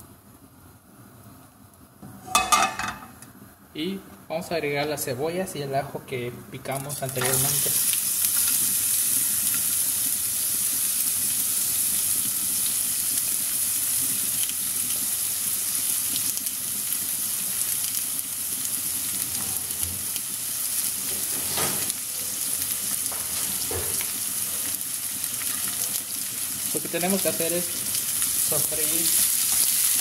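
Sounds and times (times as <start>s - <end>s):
onion and garlic sizzling in a pan: 6.6s - 30.0s.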